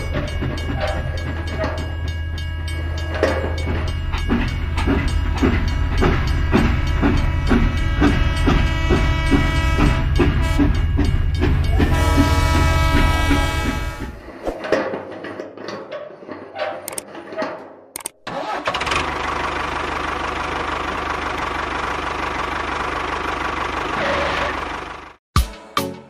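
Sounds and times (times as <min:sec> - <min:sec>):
engine clattering and knocking: 0:00.0 - 0:13.4, 0:18.6 - 0:25.2.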